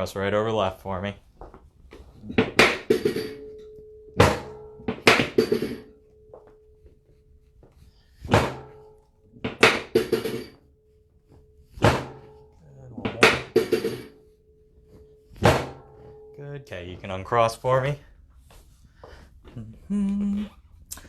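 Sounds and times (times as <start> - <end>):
sharp thunks of chiropractic table: 2.0 - 6.5, 8.1 - 10.6, 11.3 - 14.3, 15.3 - 16.3.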